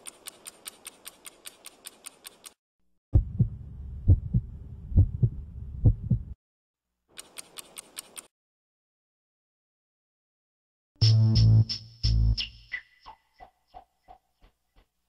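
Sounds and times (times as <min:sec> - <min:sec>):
rapid even ticking: 0:00.0 - 0:02.6, 0:07.2 - 0:08.3
deep heartbeat thumping: 0:03.2 - 0:06.4.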